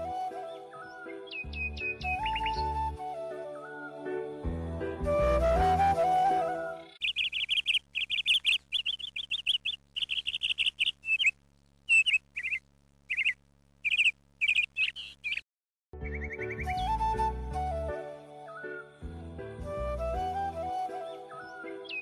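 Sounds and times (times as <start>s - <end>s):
flute music: 0.0s - 7.0s, 16.0s - 22.0s
bird chirping rapidly: 0.8s - 2.7s, 6.8s - 15.4s, 16.0s - 16.9s, 21.4s - 22.0s
faint steady hum: 6.8s - 15.4s.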